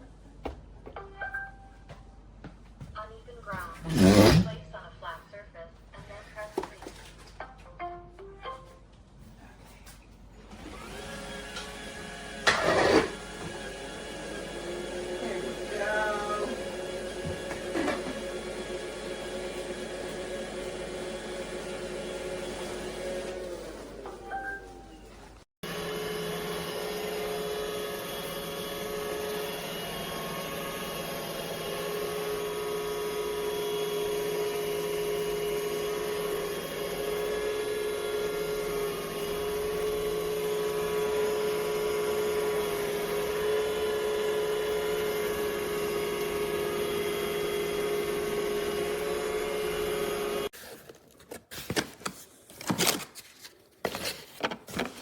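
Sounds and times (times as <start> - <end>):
electric motor humming: 3.9 - 4.5, 25.6 - 50.5.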